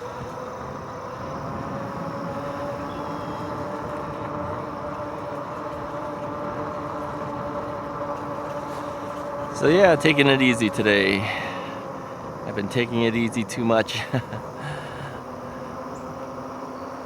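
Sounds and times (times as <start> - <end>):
tyre and wind noise: 0.0 - 16.6
electric hub motor whining: 0.0 - 17.0.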